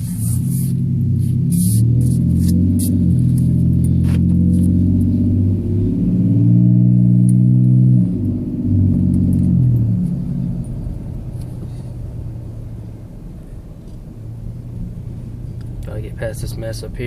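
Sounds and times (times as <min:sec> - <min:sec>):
truck engine heard from cab: 0:00.0 - 0:17.0.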